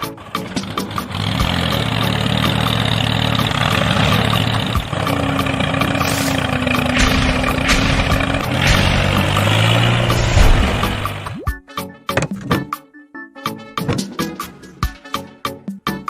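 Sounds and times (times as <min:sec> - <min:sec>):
vehicle engine running: 0:00.0 - 0:11.4.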